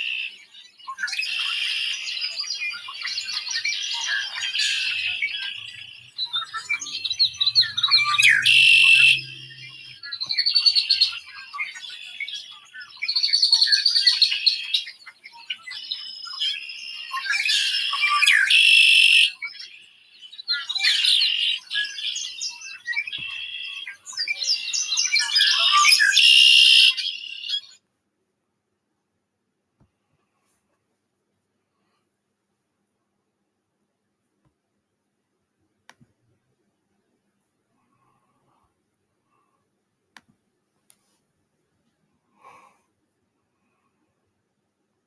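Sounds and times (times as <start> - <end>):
songbird singing: 0.0 - 27.8.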